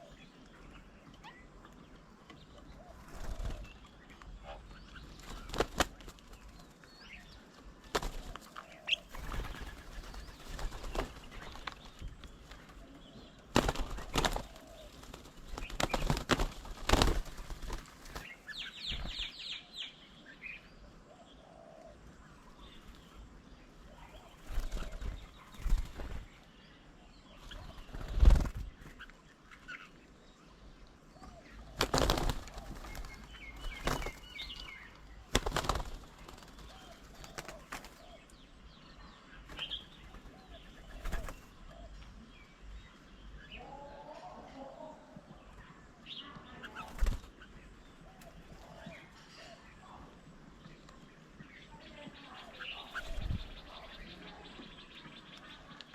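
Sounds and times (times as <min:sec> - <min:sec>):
bird wings flapping: 0:03.0 - 0:03.8, 0:05.0 - 0:06.8, 0:07.8 - 0:19.4, 0:24.3 - 0:26.4, 0:27.5 - 0:29.1, 0:31.7 - 0:38.1, 0:39.5 - 0:41.5, 0:46.6 - 0:47.4.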